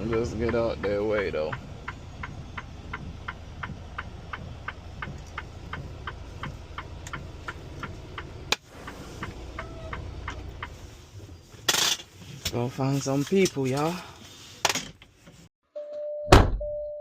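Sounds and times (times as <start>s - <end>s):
turn-signal flasher clicking: 0.0s - 10.8s
idling truck engine rumble: 0.0s - 11.6s.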